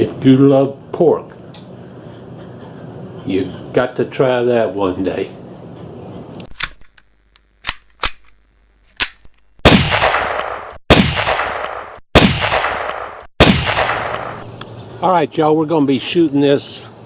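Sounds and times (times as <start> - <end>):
small sharp clicks: 6.4 - 9.5
echoing gunshots: 9.6 - 14.6.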